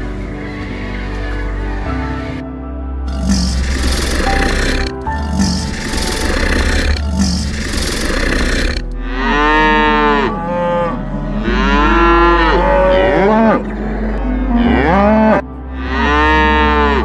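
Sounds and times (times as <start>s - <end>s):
cow mooing: 3.1s - 13.6s, 14.5s - 17.0s.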